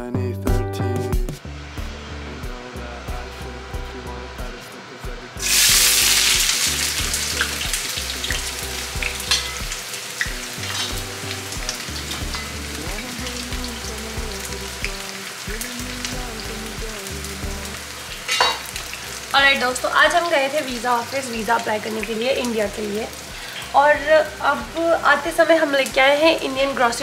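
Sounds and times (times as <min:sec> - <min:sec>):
background music with a beat: 0:00.0 - 0:19.4
onion sizzling in hot oil: 0:05.4 - 0:27.0.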